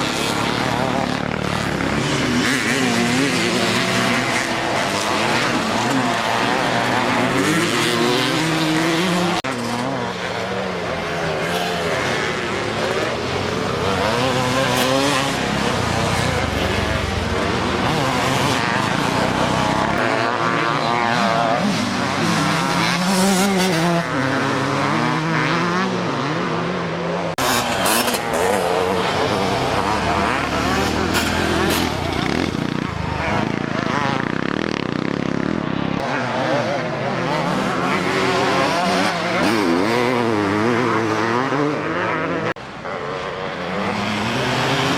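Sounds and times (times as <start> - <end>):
motocross bike engines revving: 0.0 - 44.9.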